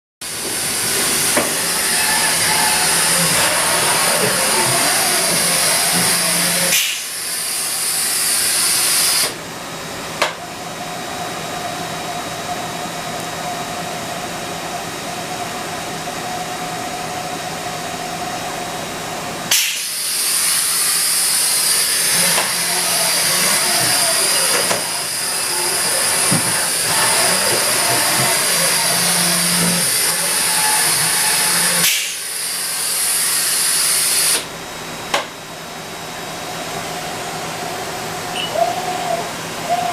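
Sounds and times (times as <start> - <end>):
machine hiss: 0.2 - 9.4, 19.5 - 34.6
machine whine: 0.2 - 9.4, 10.4 - 39.9
sharp click: 19.5 - 19.9, 31.8 - 32.2.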